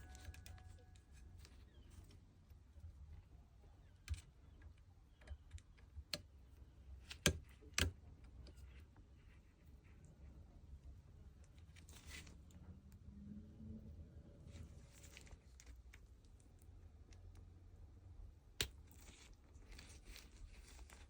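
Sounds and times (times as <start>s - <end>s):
low steady hum: 0.0s - 21.0s
faint clicks and taps: 2.8s - 9.1s.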